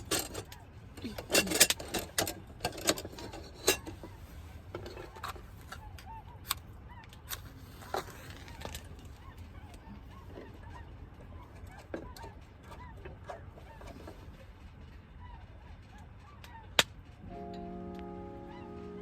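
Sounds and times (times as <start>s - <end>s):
light clicks and knocks of gear: 0.0s - 17.2s
distant honking bird calls: 16.5s - 19.0s.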